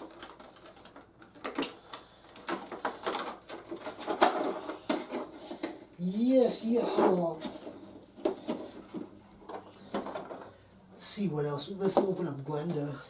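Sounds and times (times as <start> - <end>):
packaging rustling: 0.0 - 10.6.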